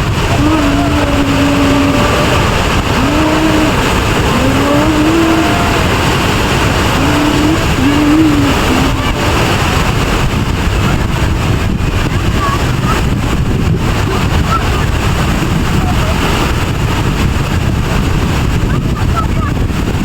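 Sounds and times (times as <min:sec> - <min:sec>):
faint melodic voice: 0:00.0 - 0:10.0
waterfall roaring: 0:00.0 - 0:20.0.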